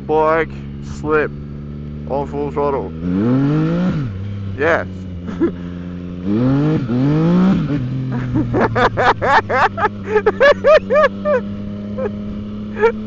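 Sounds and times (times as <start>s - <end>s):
motorcycle engine at full throttle: 0.0s - 13.0s
rapid laughter: 5.2s - 5.7s, 8.1s - 12.2s, 12.8s - 13.0s.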